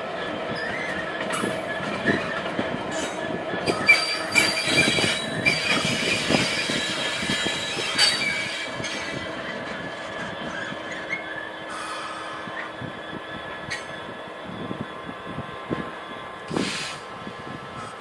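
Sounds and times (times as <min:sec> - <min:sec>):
train wheels squealing on rail: 0:00.0 - 0:18.0.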